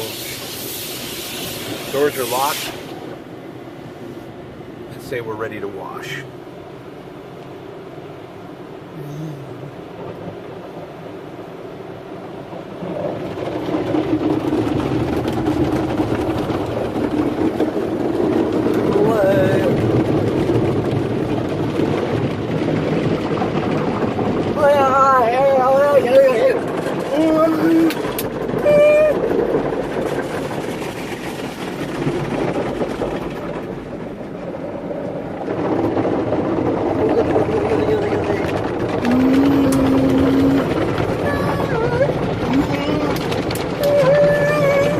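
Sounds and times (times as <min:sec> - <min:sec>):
car wash brushes and spray: 0:00.0 - 0:08.7, 0:09.5 - 0:44.9
spattering crackle: 0:25.6 - 0:34.1.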